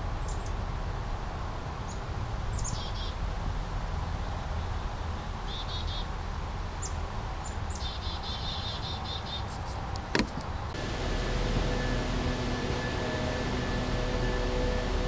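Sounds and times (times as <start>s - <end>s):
brook water flowing: 10.0s - 15.0s
songbird singing: 10.0s - 15.0s.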